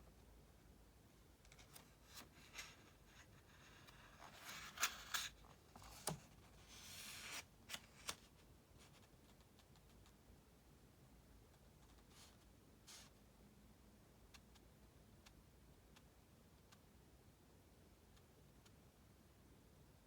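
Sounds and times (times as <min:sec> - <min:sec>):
page turning: 0:01.5 - 0:08.4
book paper rustling: 0:01.5 - 0:09.1.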